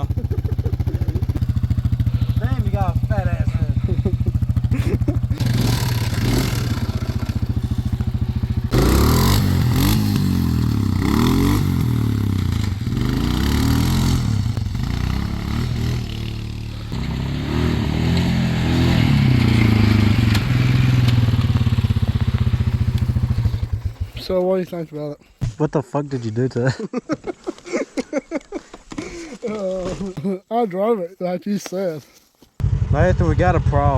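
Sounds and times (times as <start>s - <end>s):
atv engine idling and revving: 0.0s - 24.5s, 32.6s - 33.9s.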